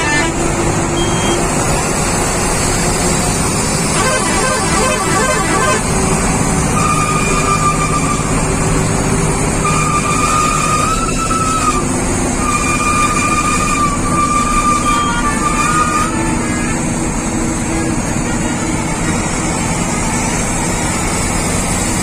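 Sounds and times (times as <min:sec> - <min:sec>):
high horn-like tone: 0:00.0 - 0:00.4, 0:03.8 - 0:06.1, 0:12.4 - 0:16.9
truck engine rumbling: 0:00.0 - 0:22.0.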